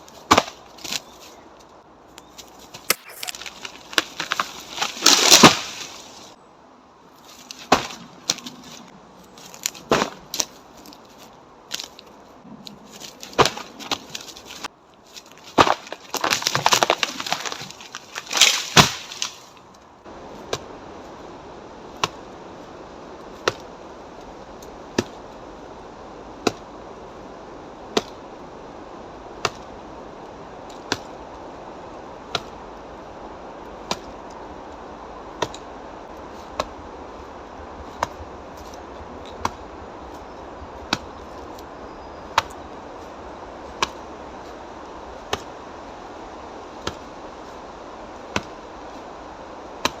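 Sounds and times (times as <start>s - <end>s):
sharp knocks on tree trunk: 2.9s - 3.3s.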